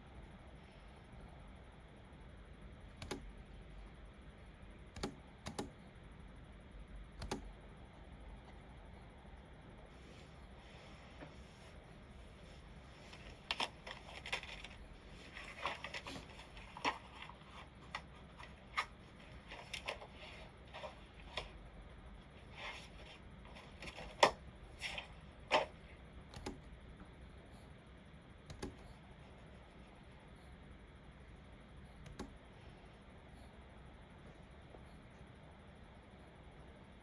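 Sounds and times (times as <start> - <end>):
computer keyboard keys clicking: 2.9 - 3.3, 5.0 - 5.7, 7.2 - 7.5, 26.3 - 26.7, 28.5 - 28.9
mouse buttons clicking: 2.9 - 3.4, 4.9 - 5.8, 7.2 - 7.5, 26.3 - 26.7, 28.5 - 29.0, 32.0 - 32.4.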